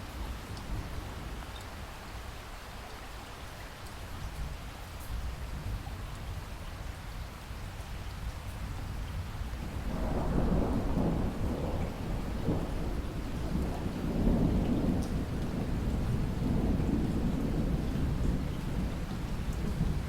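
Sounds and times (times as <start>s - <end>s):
steady rain: 0.0s - 20.0s
thunder rumbling: 9.6s - 20.0s.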